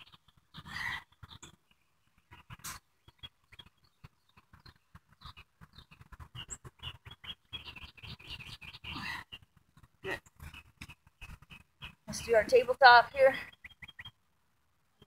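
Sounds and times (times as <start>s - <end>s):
faint bird chirps: 0.0s - 14.4s.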